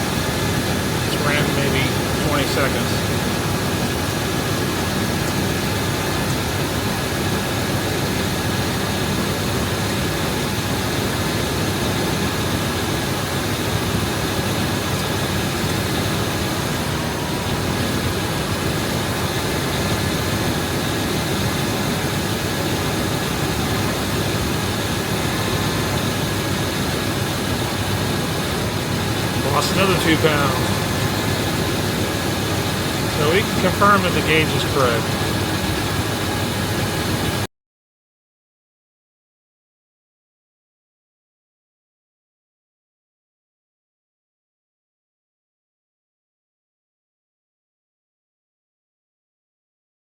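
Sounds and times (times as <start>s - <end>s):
car engine idling: 0.1s - 4.6s, 14.8s - 36.1s.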